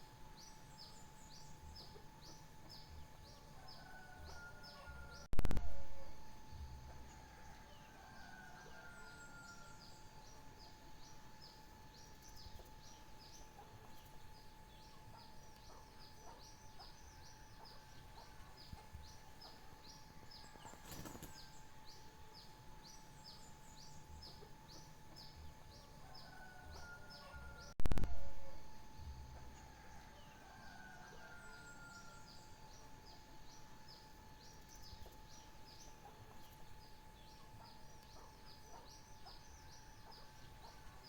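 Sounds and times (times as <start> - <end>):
faint steady hum: 0.0 - 41.0
songbird chirping: 0.0 - 41.0.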